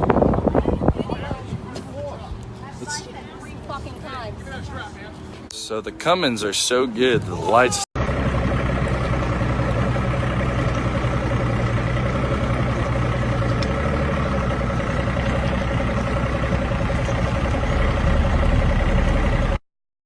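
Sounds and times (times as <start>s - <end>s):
diesel truck engine running: 0.0s - 19.6s.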